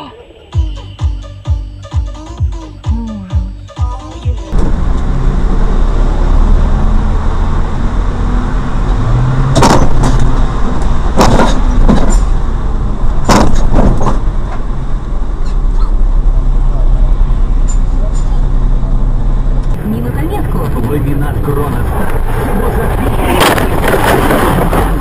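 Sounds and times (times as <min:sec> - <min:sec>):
car engine and road rumble: 0:00.0 - 0:25.0
sharp knocks: 0:09.5 - 0:10.3, 0:11.1 - 0:12.3, 0:13.2 - 0:14.3.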